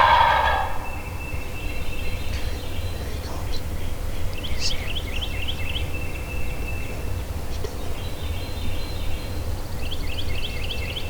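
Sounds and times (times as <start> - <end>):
songbirds singing: 0.0 - 11.0
steady low rumble: 0.6 - 10.5.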